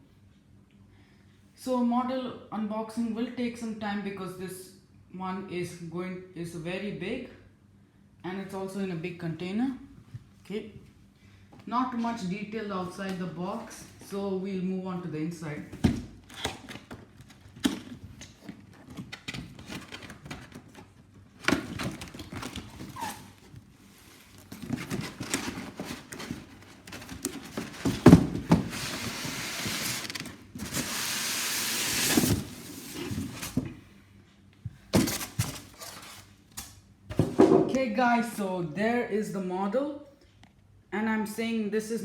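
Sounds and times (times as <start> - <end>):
packaging rustling and scraping: 16.2 - 33.8, 35.0 - 36.5.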